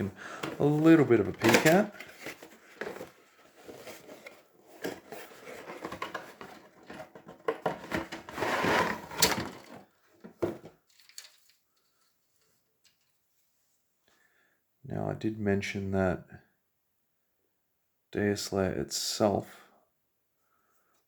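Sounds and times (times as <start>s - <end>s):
plastic parts clicking and scraping: 0.4s - 13.2s
cardboard box being handled: 0.5s - 9.2s.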